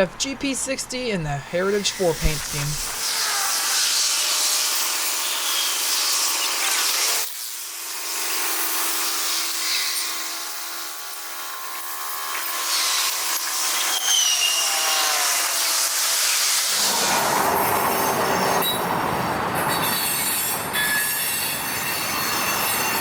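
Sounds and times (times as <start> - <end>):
freight train rolling past: 16.7 - 23.0
high wheel squeal: 16.7 - 23.0
steel wheels grinding on rails: 16.7 - 23.0.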